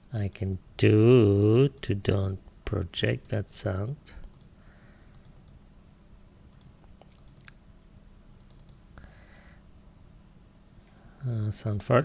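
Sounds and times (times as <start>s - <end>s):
low steady hum: 0.0s - 12.0s
computer keyboard clicking: 5.1s - 5.6s, 6.5s - 7.6s, 8.4s - 8.8s.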